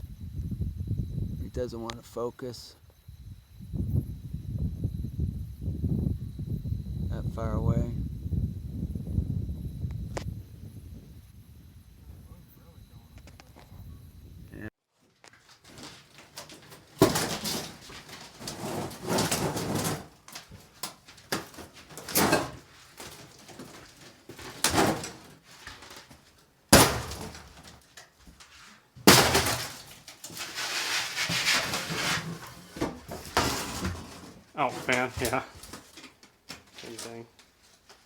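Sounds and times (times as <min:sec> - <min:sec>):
rattling and scraping: 0:15.1 - 0:38.0
sharp bangs: 0:26.7 - 0:27.8, 0:29.0 - 0:30.1.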